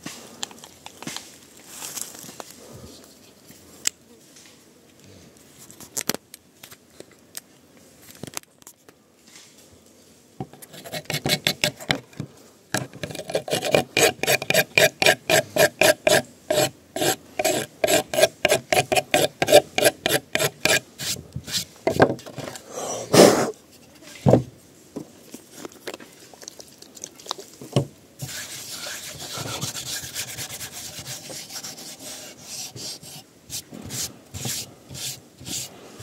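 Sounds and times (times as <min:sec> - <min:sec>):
rasping strokes on wood: 0:10.6 - 0:12.0, 0:12.8 - 0:21.6, 0:28.2 - 0:35.8.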